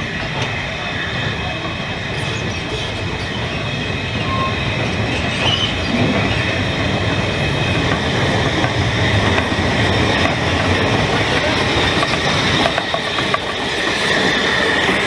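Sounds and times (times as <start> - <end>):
train rumbling on rails: 0.0 - 15.0
high wheel squeal: 2.1 - 15.0.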